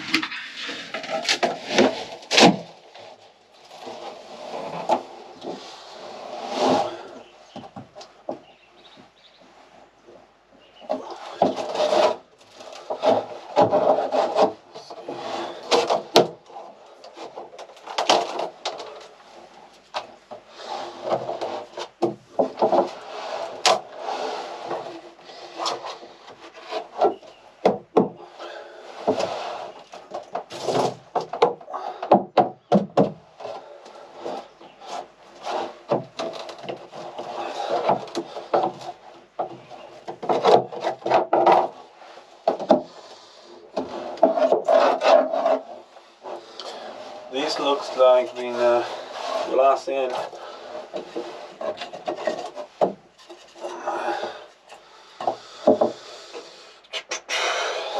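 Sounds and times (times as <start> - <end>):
wood and fibreglass scraping: 0.0 - 57.9
sharp cracks and knocks: 0.9 - 4.0, 10.8 - 24.0, 29.0 - 43.0.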